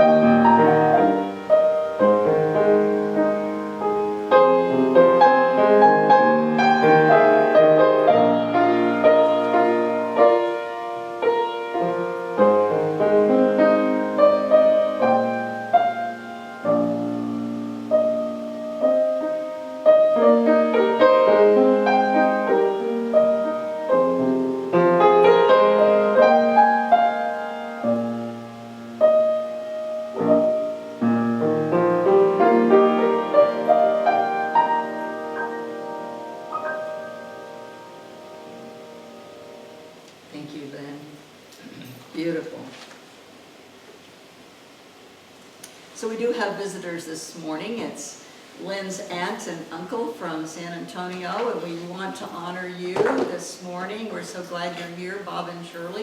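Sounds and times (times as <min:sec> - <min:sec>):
slow solo piano piece: 0:00.0 - 0:40.3.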